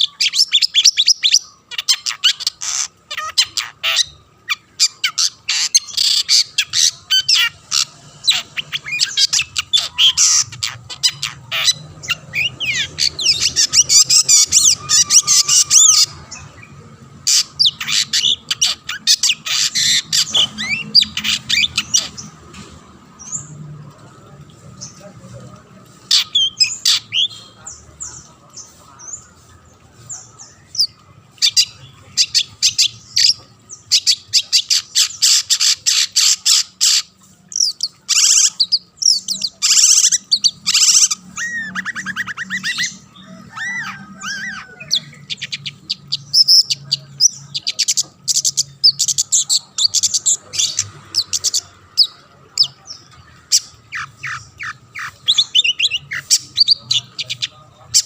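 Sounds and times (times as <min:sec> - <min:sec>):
shrike singing: 0:00.0 - 0:22.4, 0:37.5 - 0:58.0.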